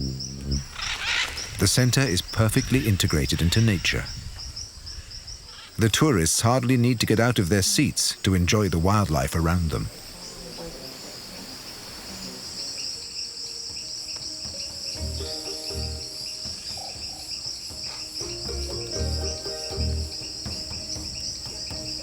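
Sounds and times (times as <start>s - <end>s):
insects chorus: 0.0s - 22.0s
soft music with drum beats: 13.5s - 22.0s.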